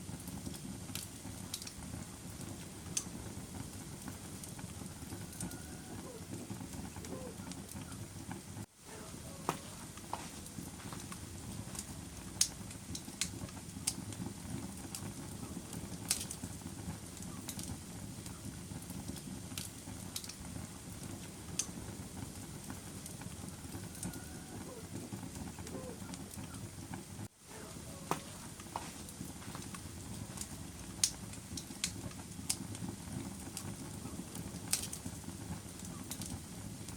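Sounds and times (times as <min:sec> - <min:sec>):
fire crackling and popping: 0:00.0 - 0:36.9
fire flames rushing: 0:00.0 - 0:36.9.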